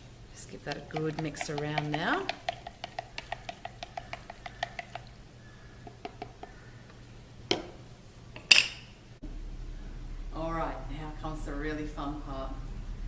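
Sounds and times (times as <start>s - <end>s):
spoon tapping inside container: 0.6s - 5.2s, 5.8s - 6.6s.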